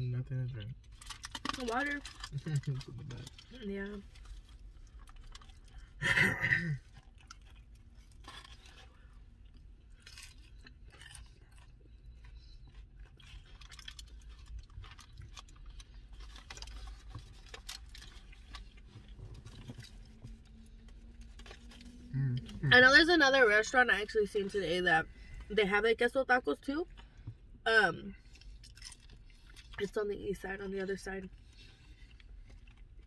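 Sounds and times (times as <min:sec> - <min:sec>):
chewing crunchy taco: 0:00.0 - 0:22.8, 0:26.8 - 0:29.9, 0:30.9 - 0:33.0.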